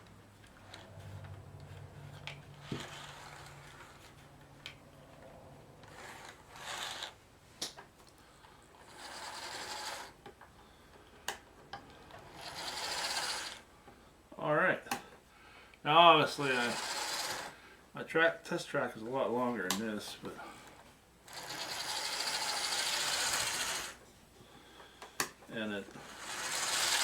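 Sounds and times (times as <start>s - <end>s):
low hum: 0.0s - 6.5s
model train motor whirring: 0.6s - 4.8s, 5.8s - 7.2s, 8.4s - 10.2s, 12.0s - 13.7s, 16.4s - 17.6s, 21.2s - 24.0s, 25.9s - 27.0s.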